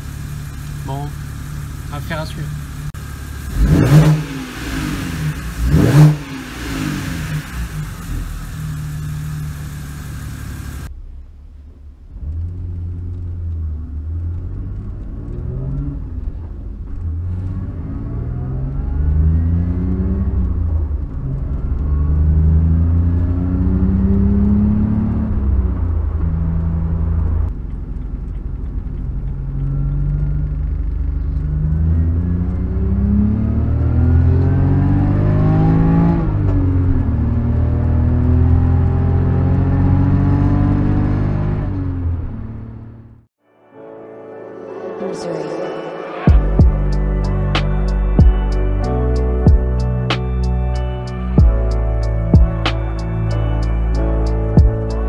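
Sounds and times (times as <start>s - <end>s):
car engine accelerating hard: 0.0s - 10.9s, 12.0s - 43.2s.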